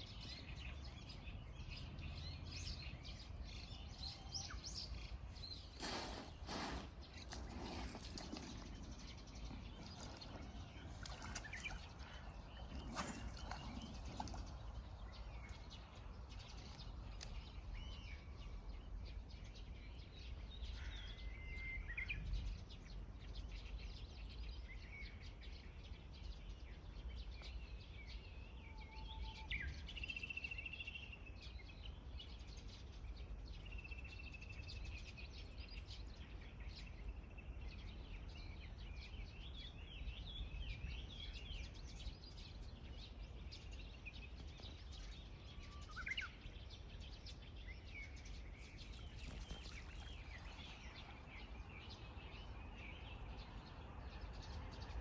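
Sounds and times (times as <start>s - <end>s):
bird chirps and trills: 37.9s - 55.0s.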